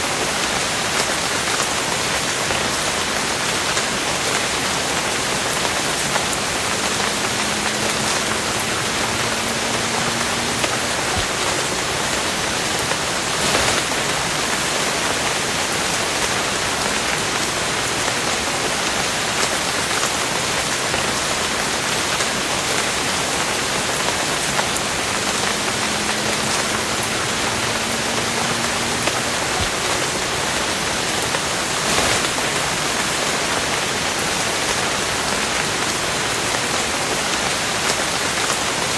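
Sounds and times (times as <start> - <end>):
rain splatter: 0.0 - 38.9
steady rain: 0.0 - 38.9.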